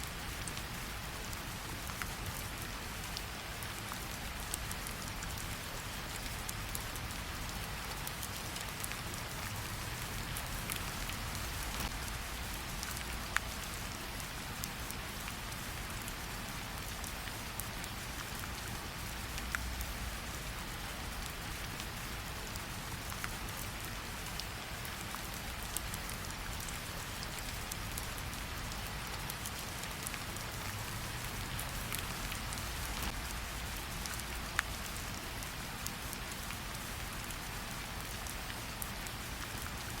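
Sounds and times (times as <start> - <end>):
steady rain: 0.0 - 40.0.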